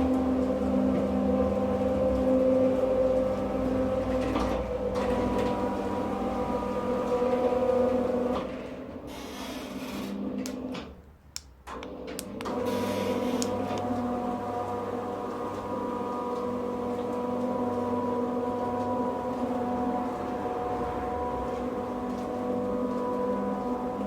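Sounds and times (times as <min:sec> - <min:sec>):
garage door motor humming: 0:00.0 - 0:11.0, 0:11.6 - 0:24.0
clicks: 0:13.4 - 0:13.9.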